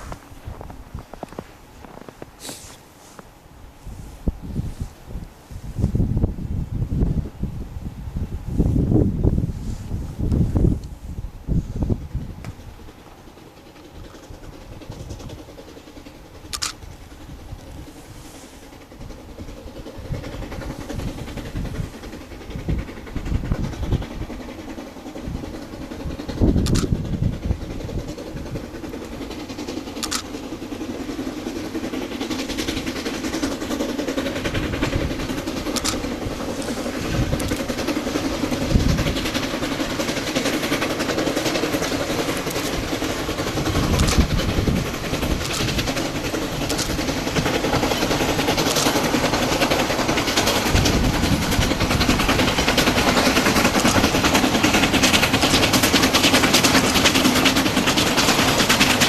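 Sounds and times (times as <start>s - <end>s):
steam locomotive running: 0.0s - 59.0s.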